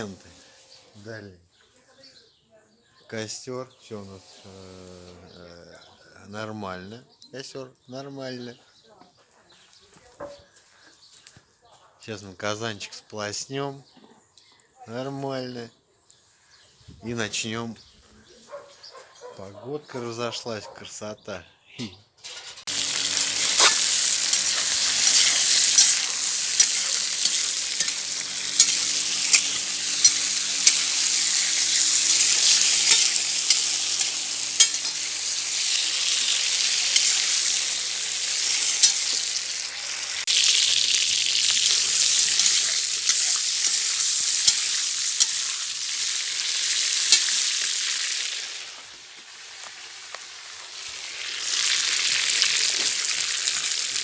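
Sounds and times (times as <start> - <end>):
food sizzling in a pot: 0.0 - 0.8, 22.4 - 54.0
sharp pops and crackles: 22.6 - 47.8.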